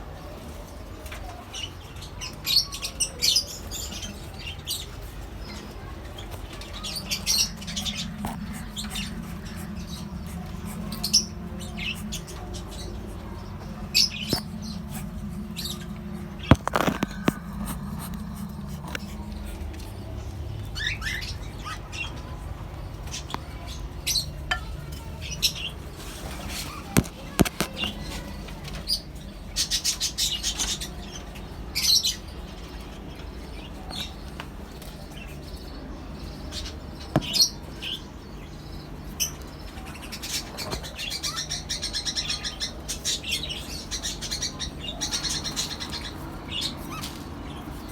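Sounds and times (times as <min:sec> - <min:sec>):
low steady hum: 0:00.0 - 0:47.9
parrots chirping: 0:06.6 - 0:28.1.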